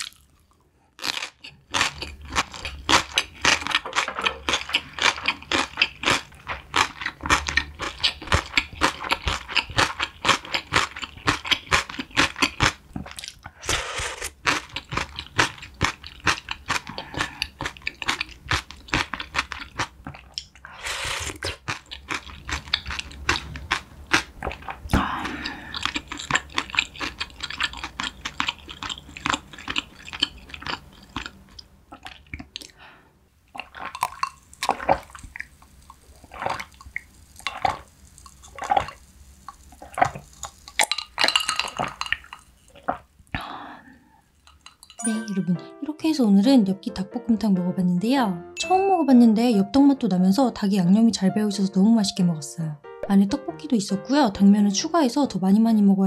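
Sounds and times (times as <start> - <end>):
crunching and chewing: 0.0 - 20.7, 21.3 - 32.8, 33.5 - 43.4
slurping broth from a spoon: 13.6 - 14.4.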